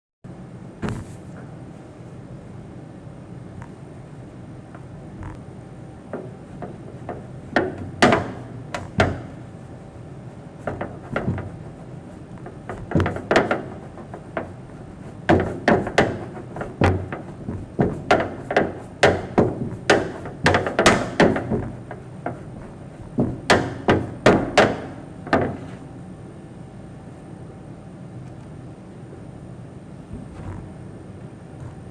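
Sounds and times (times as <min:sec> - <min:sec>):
steady low hum: 0:00.3 - 0:31.9
sharp knocks: 0:06.1 - 0:09.6, 0:10.6 - 0:25.8.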